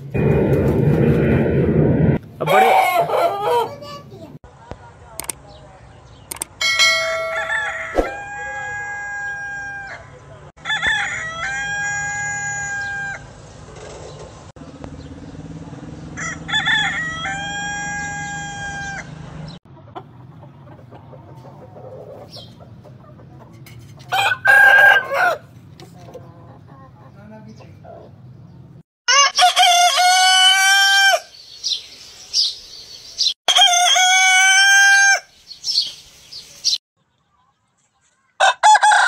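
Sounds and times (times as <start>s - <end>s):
roosters crowing: 2.4s - 3.8s, 6.7s - 13.4s, 16.0s - 19.6s, 24.0s - 25.6s, 29.1s - 31.5s, 33.5s - 35.5s, 38.4s - 39.0s.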